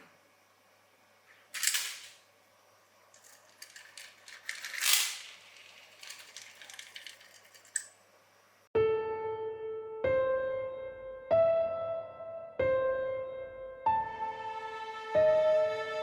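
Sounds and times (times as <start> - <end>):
scraping rustles: 3.2 - 8.0.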